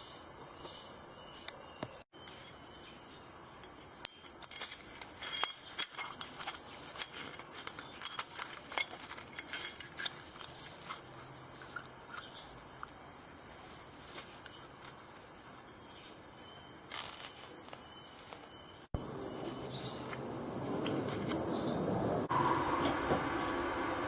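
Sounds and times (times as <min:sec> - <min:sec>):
insects chirping: 0:00.0 - 0:24.0
metallic clicks and clinks: 0:03.6 - 0:13.0.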